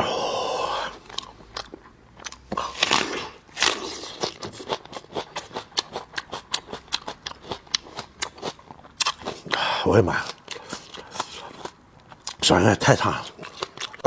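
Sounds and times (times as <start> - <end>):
chewing meat: 0.8 - 14.0
loud bite into food: 2.2 - 9.6.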